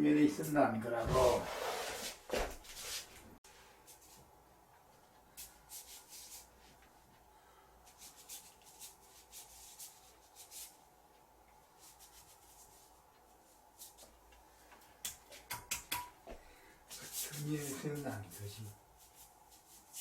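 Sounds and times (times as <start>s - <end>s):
brush rubbing on paper: 5.4s - 6.8s, 7.9s - 10.8s, 11.6s - 14.1s, 16.9s - 20.0s.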